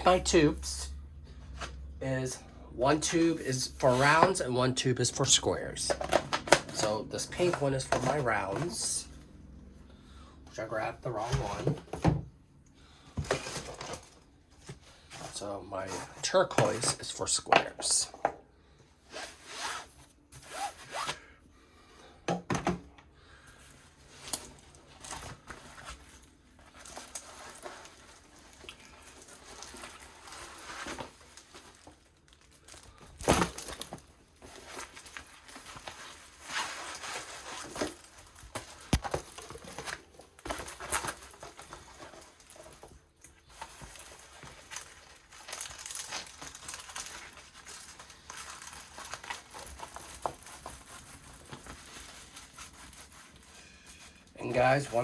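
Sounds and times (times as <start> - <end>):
canvas crinkling and rustling: 19.2 - 21.3, 23.9 - 55.0.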